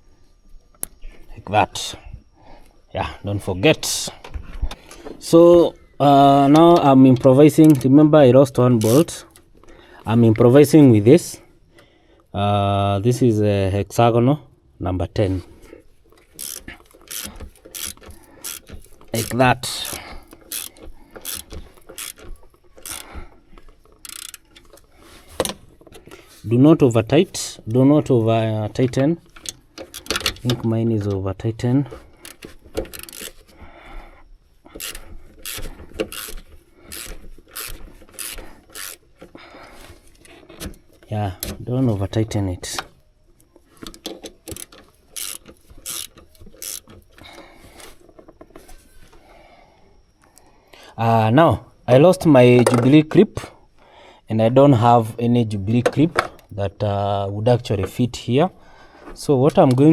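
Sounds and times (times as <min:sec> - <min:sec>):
ratchet wrench clicking: 0:08.8 - 0:09.2, 0:16.3 - 0:23.1, 0:24.0 - 0:24.6, 0:29.4 - 0:30.4, 0:32.2 - 0:33.4, 0:34.8 - 0:39.0, 0:43.8 - 0:47.0.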